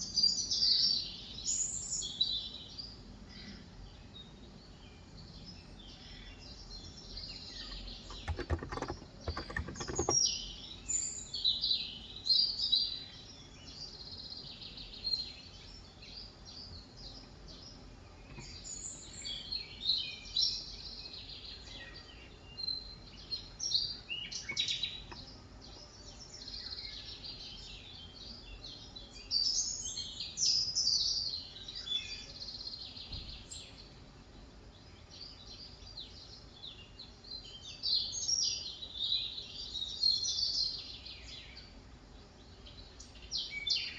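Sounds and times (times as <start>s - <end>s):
birds chirping: 5.8s - 12.2s.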